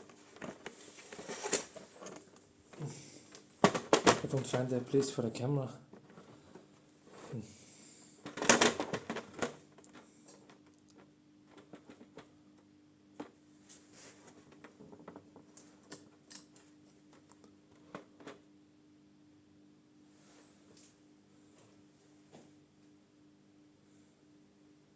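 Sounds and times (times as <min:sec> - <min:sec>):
faint steady hum: 0:00.0 - 0:24.9
camera handling rustle and scrape: 0:00.1 - 0:04.0.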